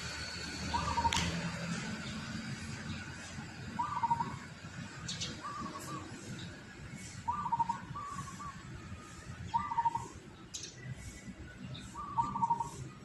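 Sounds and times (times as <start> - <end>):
bird warbling calls: 0.7 - 1.3, 3.8 - 4.4, 5.1 - 8.7, 9.5 - 12.9.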